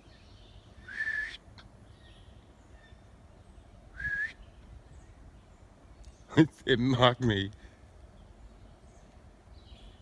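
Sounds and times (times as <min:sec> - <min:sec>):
short rising whistles: 0:00.8 - 0:01.4, 0:04.0 - 0:04.4.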